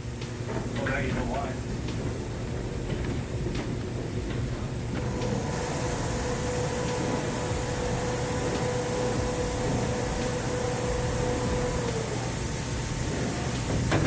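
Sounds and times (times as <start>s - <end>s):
steady machine whine: 0.9s - 14.0s
sawmill machinery drone: 4.2s - 14.0s.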